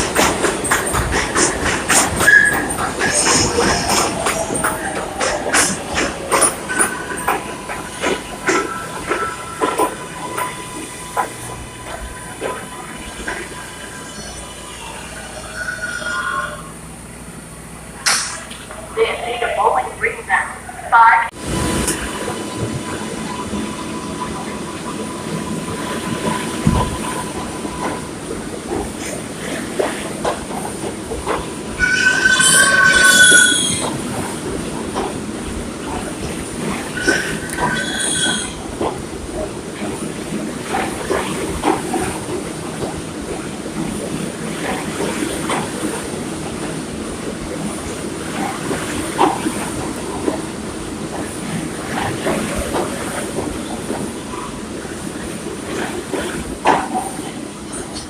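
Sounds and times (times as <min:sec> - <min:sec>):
wheels clacking over rail joints: 0:00.0 - 0:13.6, 0:21.8 - 0:58.0
subway train rumbling: 0:00.0 - 0:58.0
metallic wheel squeal: 0:02.2 - 0:03.8, 0:08.6 - 0:16.8, 0:31.8 - 0:34.0, 0:36.9 - 0:38.6.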